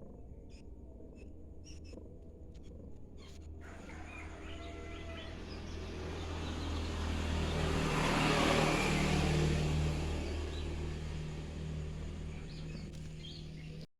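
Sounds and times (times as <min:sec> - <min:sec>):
motor vehicle passing by: 0:03.2 - 0:13.9.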